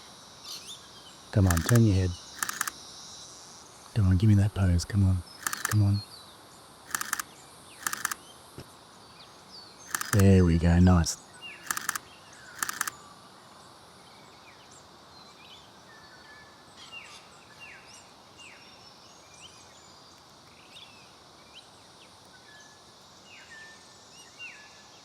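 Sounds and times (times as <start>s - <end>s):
faint outdoor hiss: 0.0s - 25.0s
small birds chirping: 1.4s - 2.7s, 4.0s - 6.0s
camera shutter burst: 1.4s - 2.8s, 5.4s - 5.9s, 6.9s - 8.2s, 9.9s - 11.0s, 11.6s - 12.0s, 12.6s - 12.9s.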